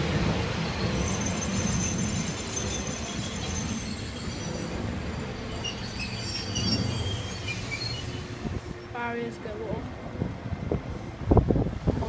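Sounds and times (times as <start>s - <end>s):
train rumbling past: 0.0s - 12.0s
high-pitched metallic squeal: 0.6s - 9.0s.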